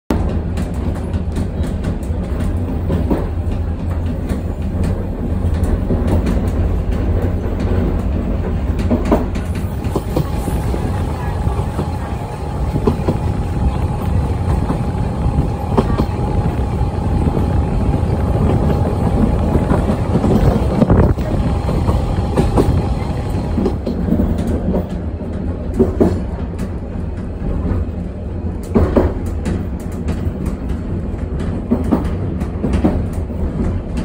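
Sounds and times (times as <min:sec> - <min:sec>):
train carriage rumbling: 0:00.1 - 0:34.0
wheels clicking on rails: 0:00.1 - 0:34.0.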